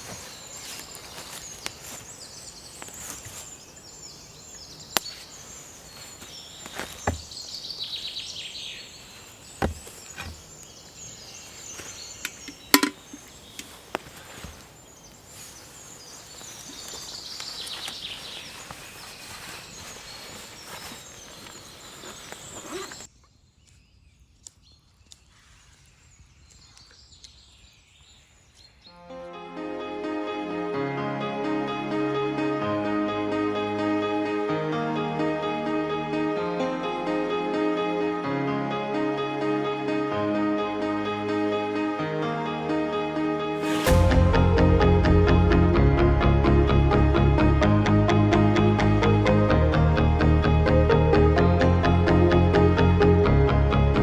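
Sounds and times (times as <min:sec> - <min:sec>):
twigs clicking and snapping: 0:00.0 - 0:25.8
bird calls: 0:00.0 - 0:29.0.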